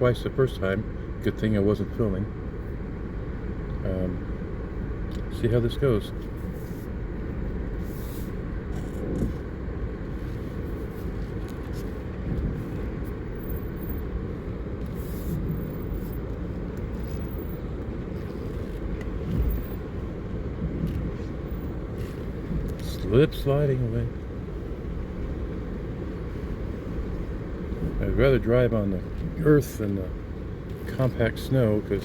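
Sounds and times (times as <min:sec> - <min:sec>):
engine and tyres rumbling: 0:00.0 - 0:32.0.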